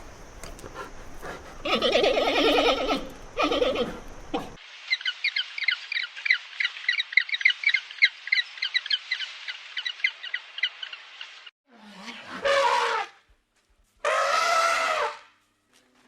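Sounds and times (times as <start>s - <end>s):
animal bleating: 1.6s - 4.5s.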